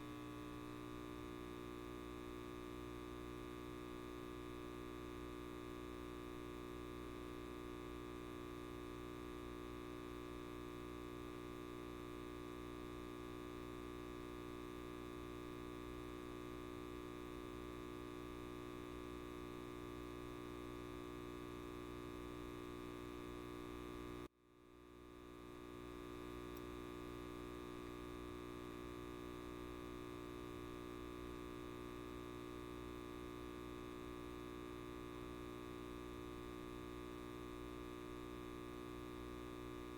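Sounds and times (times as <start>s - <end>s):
light bulb buzzing: 14.0s - 39.9s.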